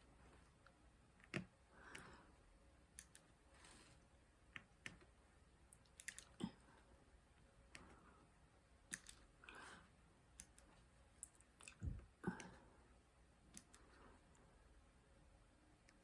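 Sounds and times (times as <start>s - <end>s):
small clicks and taps: 0.6s - 2.1s, 4.5s - 5.2s.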